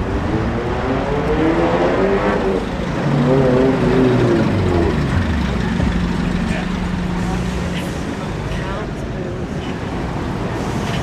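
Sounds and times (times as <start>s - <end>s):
vehicle engine revving: 0.0s - 8.5s
low rumble: 2.8s - 8.2s.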